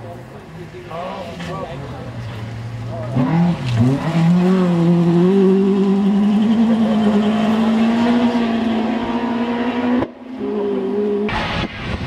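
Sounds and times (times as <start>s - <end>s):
rally car engine revving high: 2.3s - 12.0s.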